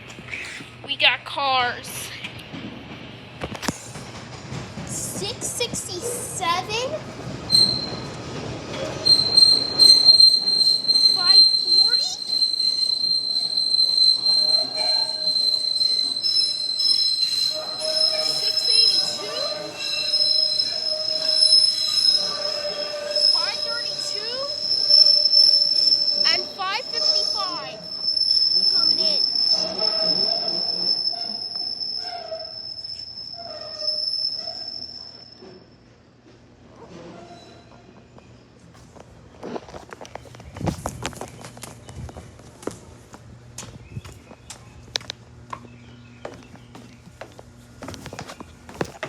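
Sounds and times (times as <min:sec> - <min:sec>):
rail cars rumbling: 0:00.0 - 0:33.4
train wheel squeal: 0:04.9 - 0:36.1, 0:36.8 - 0:38.4.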